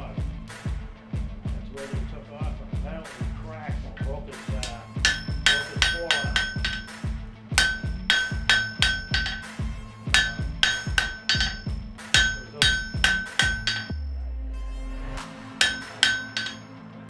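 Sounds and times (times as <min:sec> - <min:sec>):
hammer striking iron on anvil: 0:04.5 - 0:14.0, 0:15.6 - 0:16.7.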